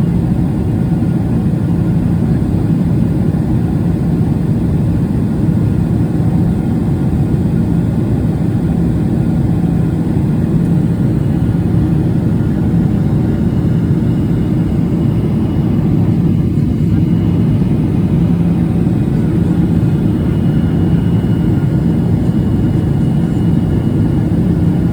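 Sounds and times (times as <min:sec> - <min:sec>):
airplane cabin rumble: 0:07.2 - 0:24.9.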